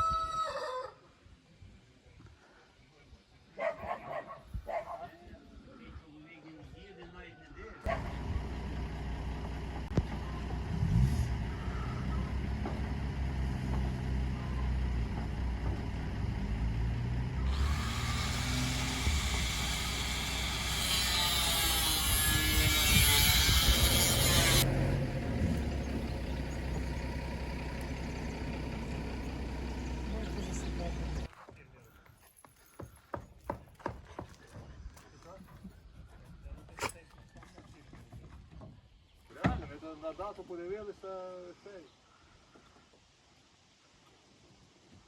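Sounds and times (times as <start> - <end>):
vehicle engine rumbling: 7.8 - 31.3.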